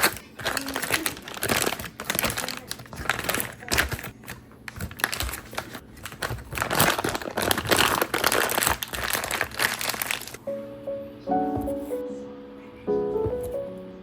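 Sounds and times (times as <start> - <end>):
wrapping crinkling and rustling: 0.0 - 10.4
soft piano music: 9.8 - 14.0.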